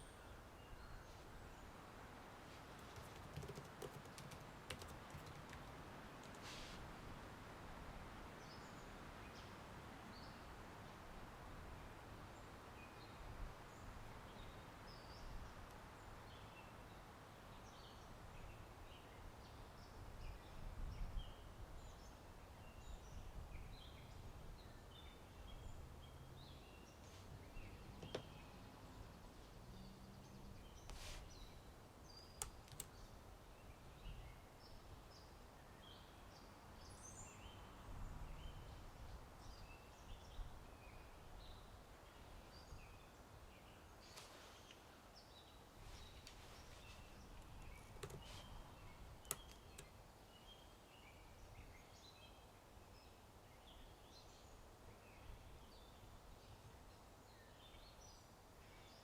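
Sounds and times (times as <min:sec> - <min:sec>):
wind in trees: 0:00.0 - 0:59.0
small birds chirping: 0:02.5 - 0:06.8, 0:12.2 - 0:59.0
short clicks: 0:32.4 - 0:33.0, 0:49.2 - 0:49.9.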